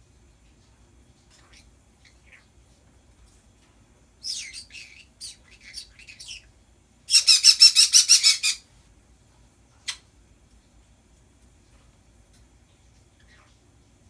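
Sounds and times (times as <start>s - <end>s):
pet birds chattering: 1.2s - 2.8s, 4.2s - 8.6s, 13.0s - 13.9s.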